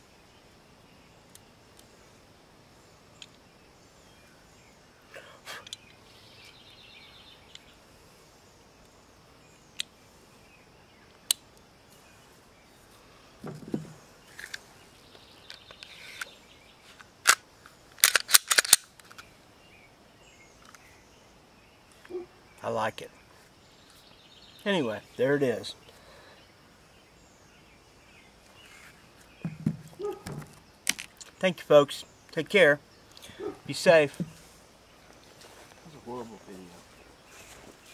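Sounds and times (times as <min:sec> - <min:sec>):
pistol clicks and clacks: 0:18.0 - 0:19.2.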